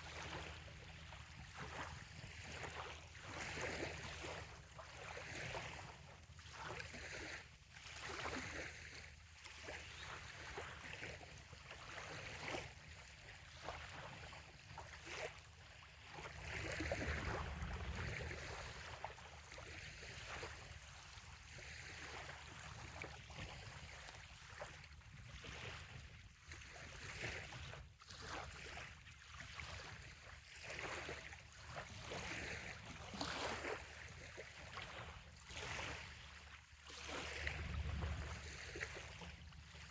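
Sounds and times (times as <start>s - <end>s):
small waves lapping on shore: 0.0s - 39.9s
low rumble: 16.9s - 19.5s, 37.5s - 39.7s.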